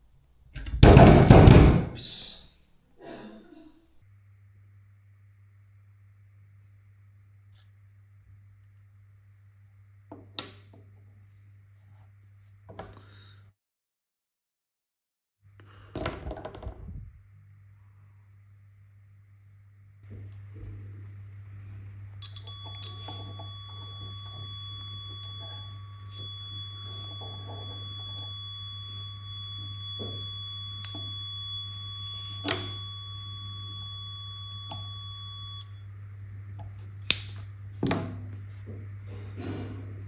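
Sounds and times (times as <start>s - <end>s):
low hum: 20.2s - 40.0s
high electronic beep tone: 22.2s - 35.7s.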